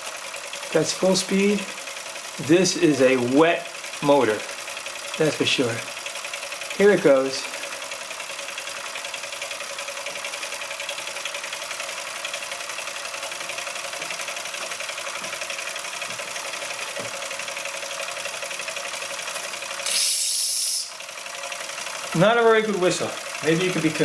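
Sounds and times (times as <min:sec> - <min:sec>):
toy steam engine clattering: 0:00.0 - 0:15.7, 0:18.5 - 0:24.0
breathy steam whistle hiss: 0:19.8 - 0:21.0.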